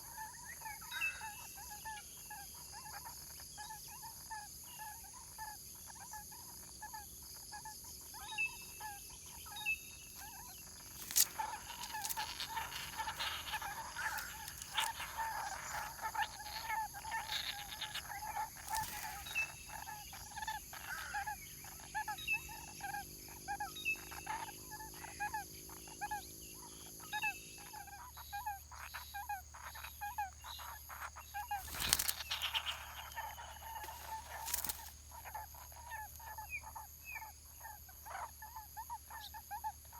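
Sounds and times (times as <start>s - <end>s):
rustling: 10.9s - 15.0s, 31.5s - 35.1s.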